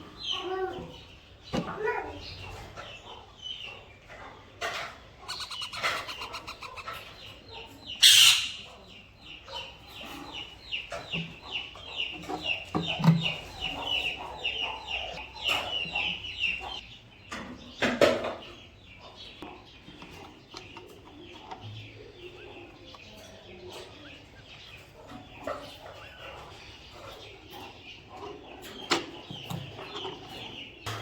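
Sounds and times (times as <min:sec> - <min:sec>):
birds chirping high: 0:00.0 - 0:31.0
bird harsh squawk: 0:08.0 - 0:08.7.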